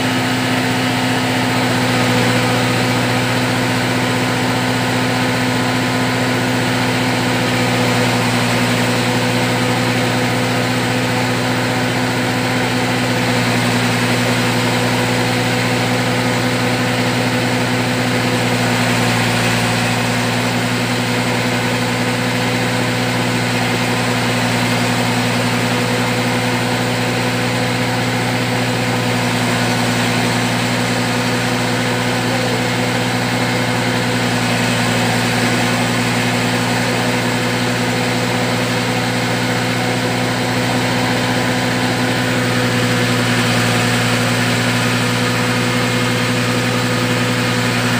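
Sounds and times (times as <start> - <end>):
pellet machine engine humming: 0.0 - 47.9.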